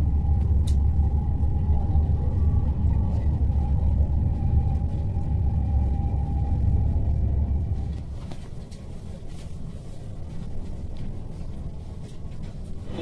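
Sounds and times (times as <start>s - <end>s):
train cabin rumble and whine: 0.0s - 13.0s.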